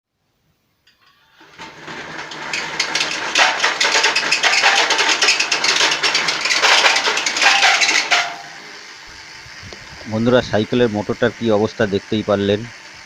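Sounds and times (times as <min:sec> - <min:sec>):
electric motor rattling roughly: 0:01.0 - 0:09.6.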